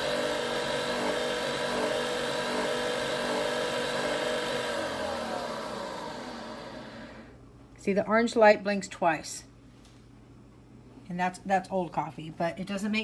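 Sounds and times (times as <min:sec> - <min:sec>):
coffee machine whirring: 0:00.0 - 0:07.4.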